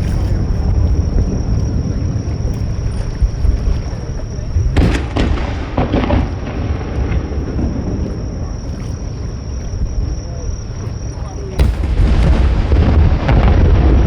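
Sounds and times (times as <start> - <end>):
firework crackling: 0.0 - 8.6, 11.6 - 14.0
wind and surf rumble: 0.0 - 14.0
firework bang: 4.6 - 8.6, 11.6 - 14.0.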